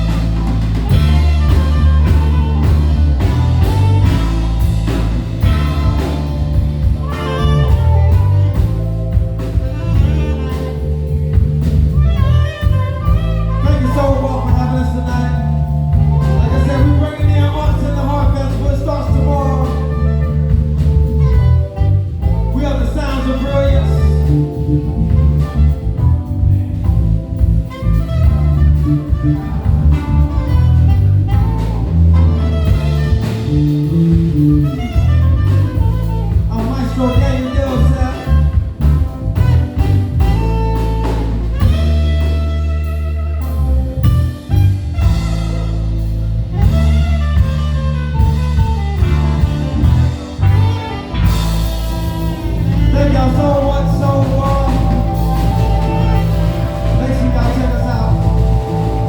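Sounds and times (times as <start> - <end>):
busy bass line: 0.0 - 59.0
drums: 0.0 - 59.0
guitar: 0.0 - 59.0
keyboard: 0.0 - 59.0
live jazz band playing: 0.0 - 59.0.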